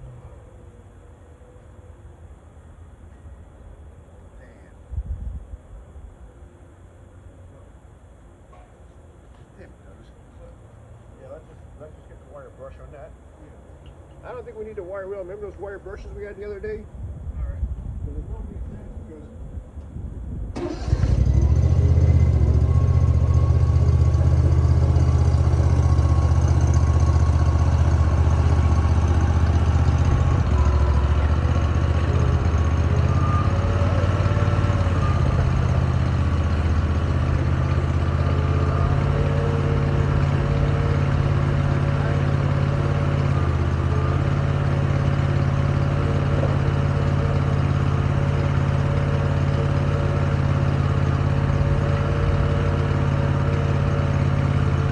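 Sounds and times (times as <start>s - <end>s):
diesel engine idling: 20.6s - 54.9s.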